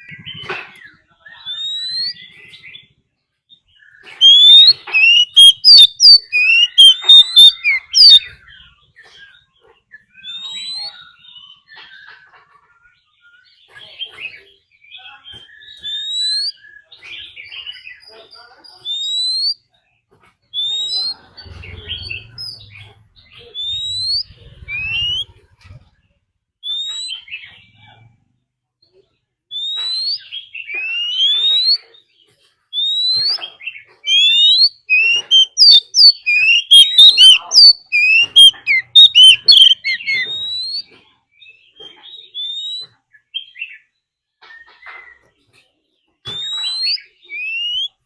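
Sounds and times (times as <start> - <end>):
bird whistling song: 0.0 - 2.9, 3.6 - 12.2, 15.3 - 18.0, 18.7 - 19.6, 20.5 - 25.4, 26.6 - 27.7, 29.5 - 32.0, 32.7 - 45.3, 46.2 - 48.0.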